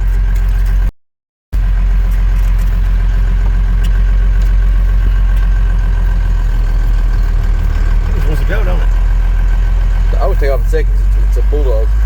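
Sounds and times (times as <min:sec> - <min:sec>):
diesel engine running steadily: 0:00.0 - 0:00.9, 0:01.6 - 0:12.0.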